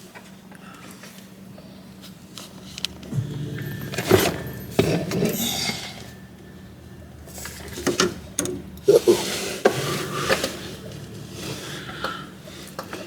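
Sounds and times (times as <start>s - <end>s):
metal scraping: 3.1s - 8.0s.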